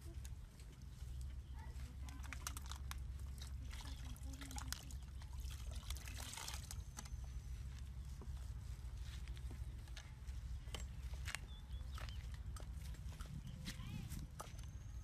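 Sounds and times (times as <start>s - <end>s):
steady low rumble: 0.0s - 15.0s
water poured into plastic basin: 2.3s - 6.8s.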